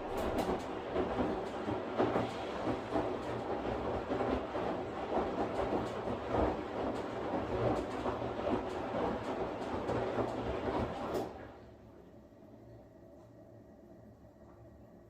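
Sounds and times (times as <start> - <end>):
washing machine swishing: 0.0 - 11.9.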